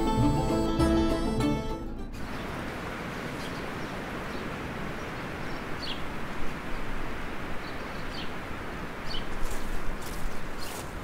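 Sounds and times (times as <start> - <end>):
rushing outdoor background: 0.0 - 11.0
birds chirping faintly: 2.2 - 11.0.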